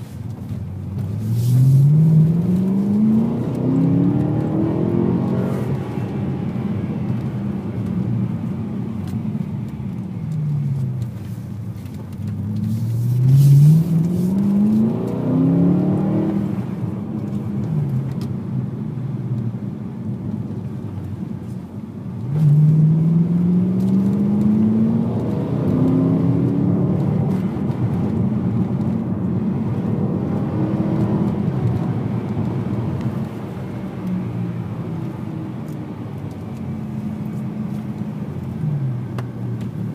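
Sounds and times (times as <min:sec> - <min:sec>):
road noise: 0:00.0 - 0:39.9
car engine revving: 0:01.0 - 0:09.1, 0:12.4 - 0:18.2, 0:22.3 - 0:39.9.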